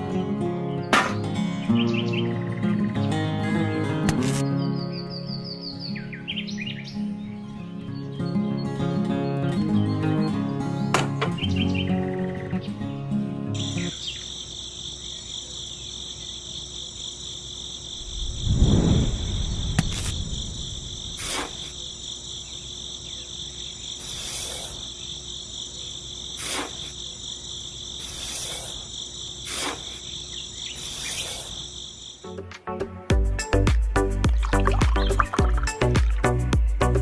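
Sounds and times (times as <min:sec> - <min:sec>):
crickets chirping: 0:11.4 - 0:32.4.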